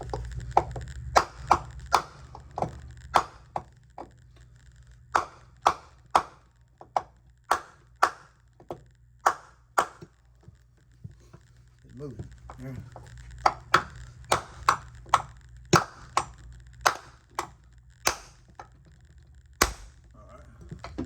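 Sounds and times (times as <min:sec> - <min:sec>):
hammer striking wooden block: 0:01.1 - 0:03.7, 0:05.2 - 0:10.1, 0:13.5 - 0:17.5, 0:18.1 - 0:18.4, 0:19.6 - 0:20.0.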